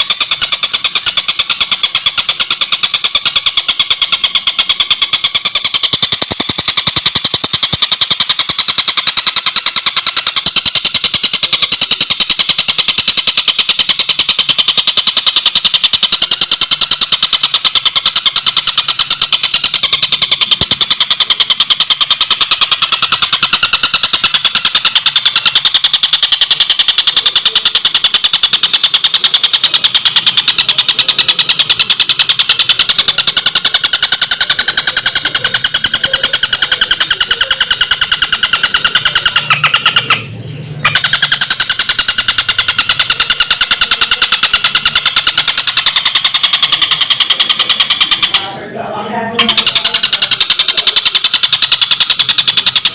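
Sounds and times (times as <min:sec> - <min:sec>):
kingfisher cackling call: 0:34.4 - 0:43.6.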